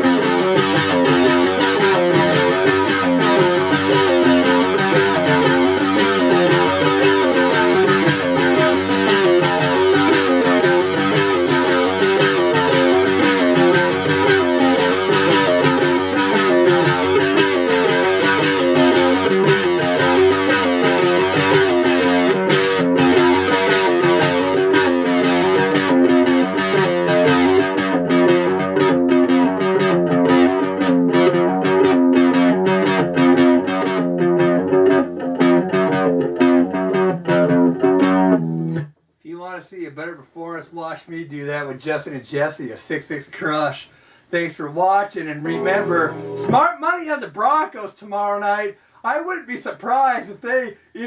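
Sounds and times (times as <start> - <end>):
distorted electric guitar chords: 0.0 - 38.9, 45.3 - 46.7.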